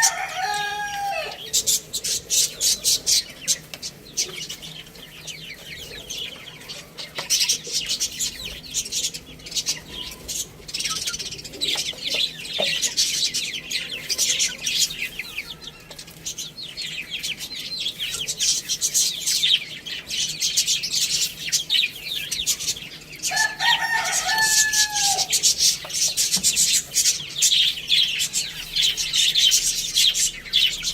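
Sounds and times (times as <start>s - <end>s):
rooster crowing: 0.0s - 1.6s, 15.2s - 16.3s, 23.2s - 25.5s
budgerigars chattering and chirping: 0.0s - 30.9s.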